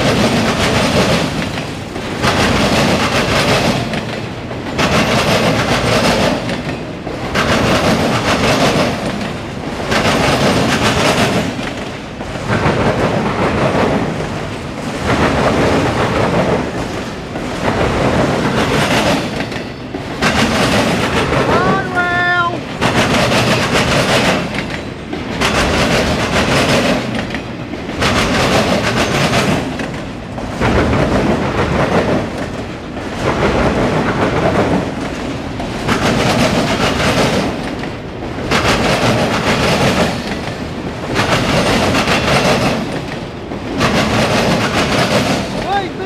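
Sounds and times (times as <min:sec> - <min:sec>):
freight train wheels rumbling: 0:00.0 - 0:46.0.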